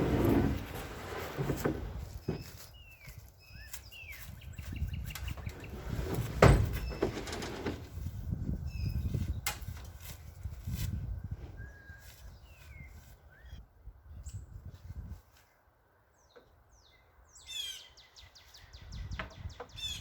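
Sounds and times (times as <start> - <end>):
small birds chirping: 2.1 - 5.9, 8.6 - 9.5, 11.6 - 14.7, 15.4 - 20.0.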